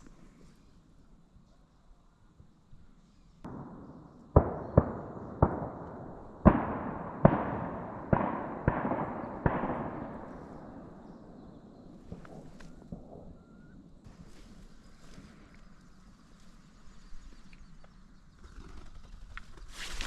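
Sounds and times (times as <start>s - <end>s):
shotgun blasts echoing: 3.5s - 13.8s.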